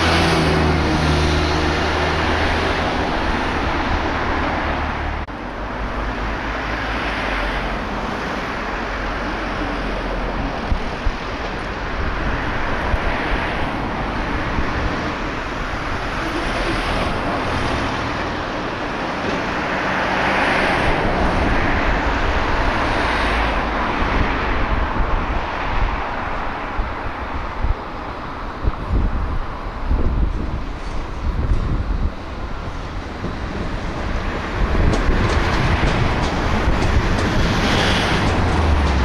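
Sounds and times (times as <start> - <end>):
train rumbling past: 0.0 - 39.0
wind on microphone: 10.0 - 19.7, 20.4 - 39.0.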